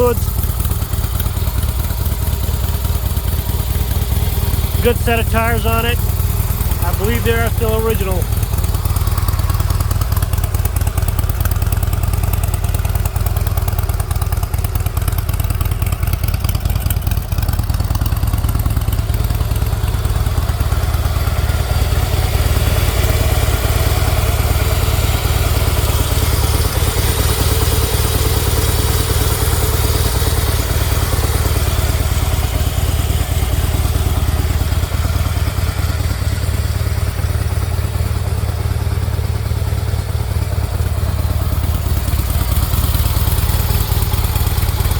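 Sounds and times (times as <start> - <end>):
motorcycle engine idling: 0.0 - 44.9.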